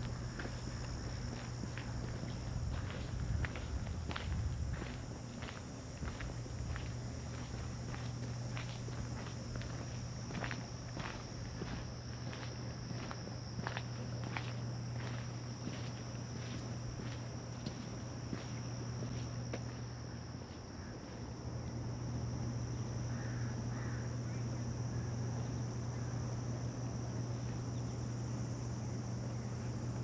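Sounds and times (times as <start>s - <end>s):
footsteps on a path: 0.0s - 21.3s
insects droning: 0.0s - 30.0s
low steady hum: 0.0s - 30.0s.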